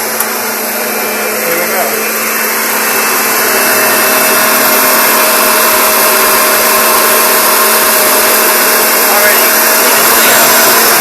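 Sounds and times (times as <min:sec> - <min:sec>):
vacuum cleaner running with whine: 0:00.0 - 0:11.0.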